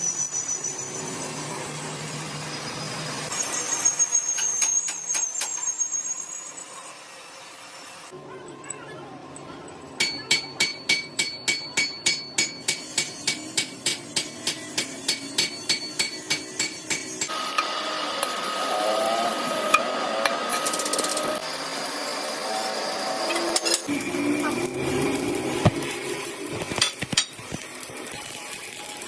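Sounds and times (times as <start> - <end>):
hammer ringing on steel: 10.0 - 17.3.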